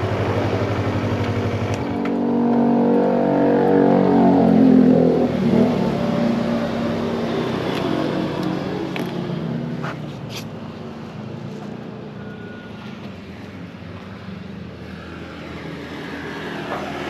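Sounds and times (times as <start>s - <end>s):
motorcycle engine accelerating: 0.0s - 9.7s.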